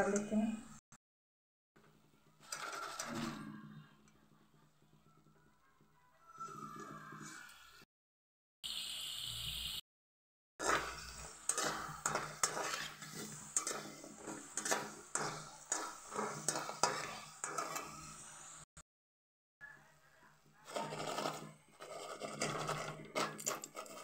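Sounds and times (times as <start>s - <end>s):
snacks sizzling in hot oil: 8.6s - 9.8s, 10.6s - 18.7s.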